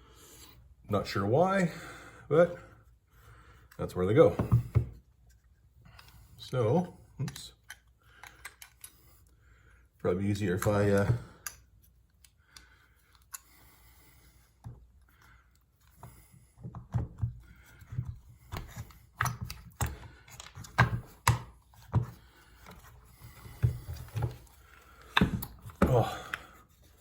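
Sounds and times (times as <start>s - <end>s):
parts clicking and knocking: 7.2s - 9.0s, 15.5s - 26.4s.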